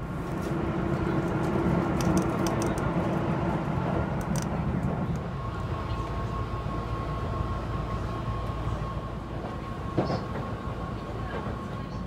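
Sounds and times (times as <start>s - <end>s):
train car rumble: 0.0s - 12.0s.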